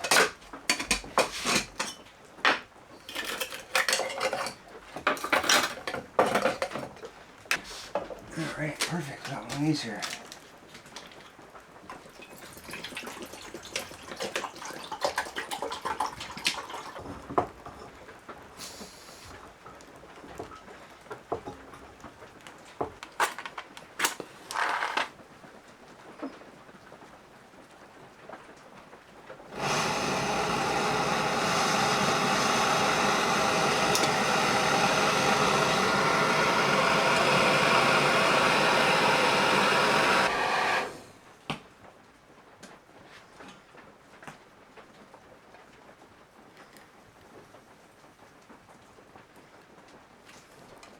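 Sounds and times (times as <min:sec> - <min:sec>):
cooking gear clinking: 0:03.0 - 0:06.8
loud rushing hiss: 0:29.5 - 0:41.2.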